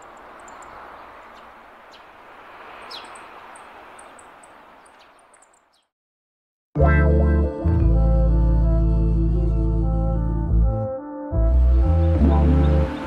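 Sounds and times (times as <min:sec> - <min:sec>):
outdoor background noise: 0:00.0 - 0:05.9.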